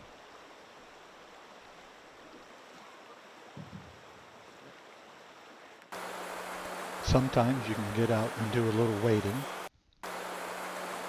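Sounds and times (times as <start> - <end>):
river water flowing: 0.0 - 11.0.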